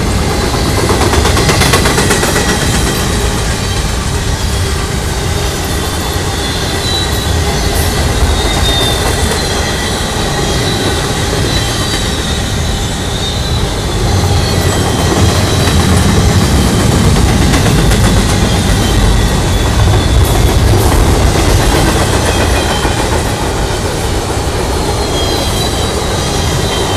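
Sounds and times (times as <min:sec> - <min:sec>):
train wheels rumbling and rattling: 0:00.0 - 0:26.9
faint wheel squeal: 0:05.5 - 0:16.0, 0:24.8 - 0:26.9.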